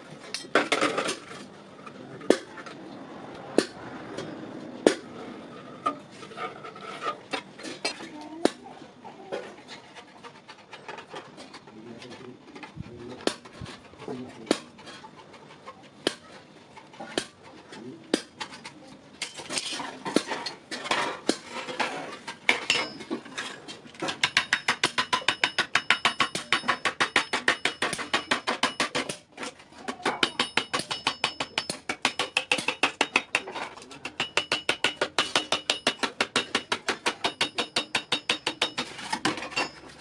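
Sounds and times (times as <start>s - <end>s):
hammer striking iron on anvil: 22.5s - 23.1s, 24.0s - 29.2s, 30.2s - 39.9s.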